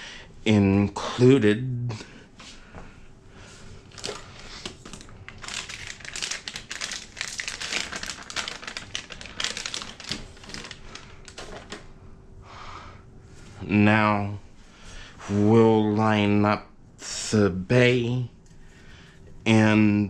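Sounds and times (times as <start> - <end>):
plastic rustling: 3.9 - 11.9.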